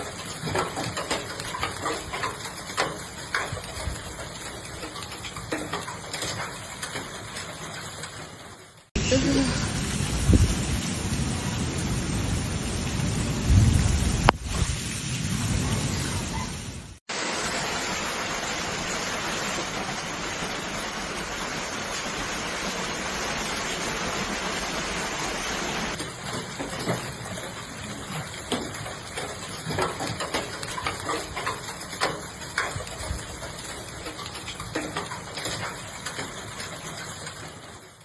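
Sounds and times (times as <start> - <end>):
drops tapping hard surfaces: 0.0 - 7.6
heavy rain pouring: 0.0 - 38.0
thunder rumble: 9.0 - 17.8
thunder crack: 9.6 - 17.7.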